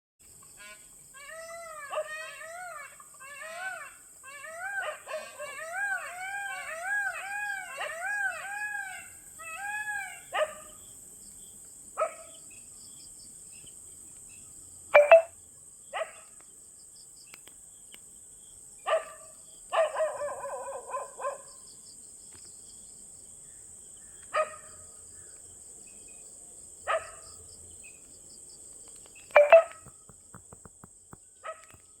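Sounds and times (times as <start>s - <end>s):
dog barking: 10.3s - 10.7s, 12.0s - 12.3s, 16.0s - 16.2s, 18.9s - 21.5s, 24.4s - 24.7s, 26.9s - 27.2s, 31.4s - 31.8s.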